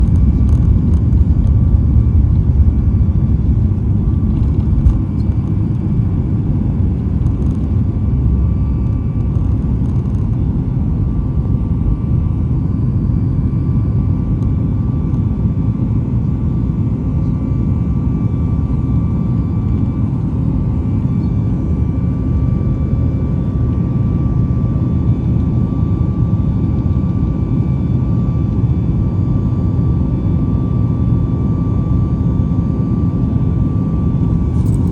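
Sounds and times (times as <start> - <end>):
engine whine: 0.0 - 34.9
jet engines rumbling at takeoff: 0.0 - 34.9.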